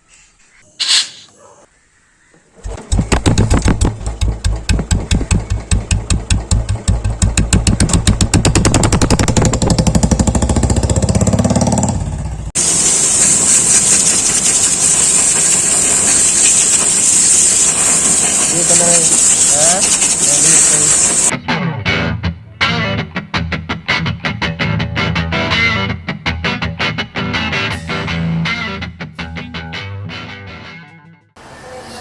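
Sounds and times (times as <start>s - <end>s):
loud steady hiss: 0.7s - 1.4s, 12.6s - 21.3s
motorcycle engine thumping: 2.6s - 12.4s.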